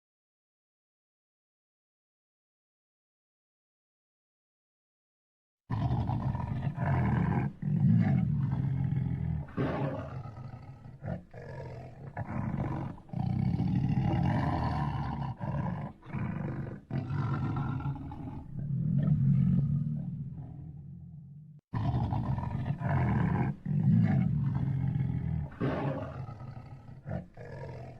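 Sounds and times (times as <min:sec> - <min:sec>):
lion roaring: 0:05.7 - 0:27.9.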